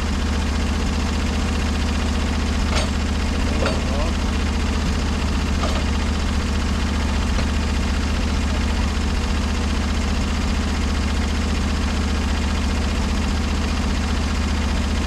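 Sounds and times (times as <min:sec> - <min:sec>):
sawmill engine humming: 0:00.0 - 0:15.0.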